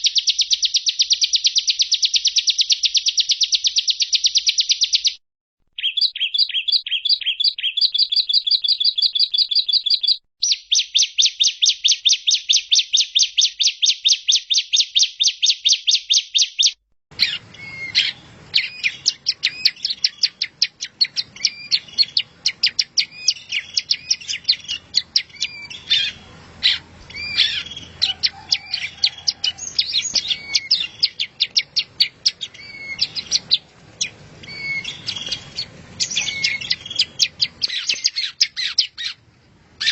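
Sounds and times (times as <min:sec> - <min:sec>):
irregular bird chirps: 0:00.0 - 0:39.9
fast repeated high bird notes: 0:17.2 - 0:39.1.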